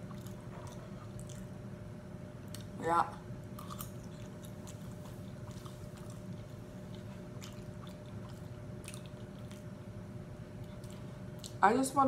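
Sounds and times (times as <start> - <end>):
mouth chewing clicks and smacks: 0.0 - 1.6, 2.4 - 2.8, 3.6 - 9.8, 10.6 - 11.6
steady low hum: 0.0 - 12.0.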